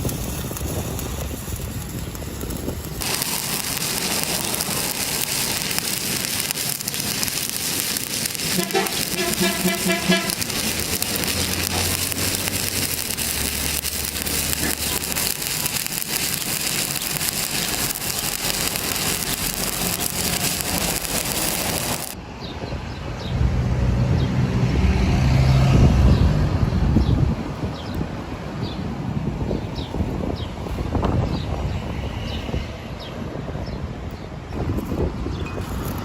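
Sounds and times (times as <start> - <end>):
welding arc crackling and hissing: 0.0 - 22.2.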